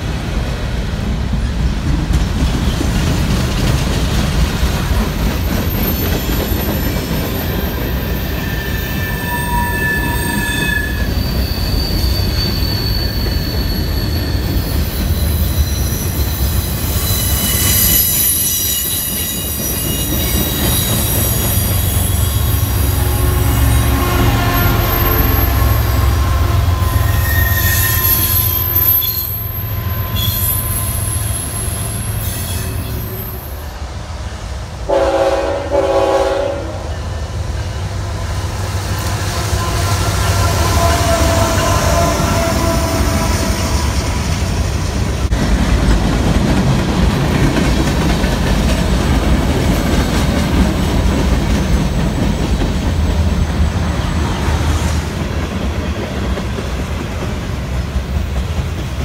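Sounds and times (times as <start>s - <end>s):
steel wheels squealing: 5.4s - 33.8s
locomotive horn blasts: 22.6s - 27.8s, 34.9s - 36.9s, 39.4s - 43.7s.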